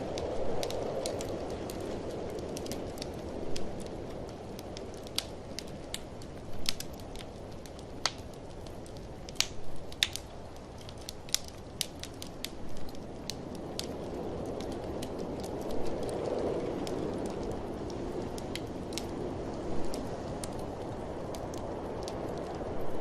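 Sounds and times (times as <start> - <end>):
blizzard wind rushing: 0.0 - 23.0
wood fire crackling and popping: 0.0 - 23.0.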